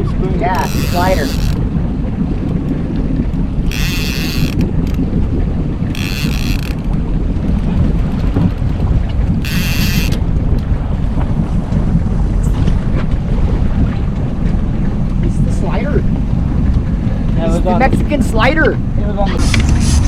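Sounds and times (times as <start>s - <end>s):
fishing boat engine rumble: 0.0s - 20.0s
wind buffeting microphone: 0.0s - 20.0s
short ratcheting buzz: 0.6s - 1.6s, 3.7s - 5.0s, 5.9s - 6.9s, 9.4s - 10.2s.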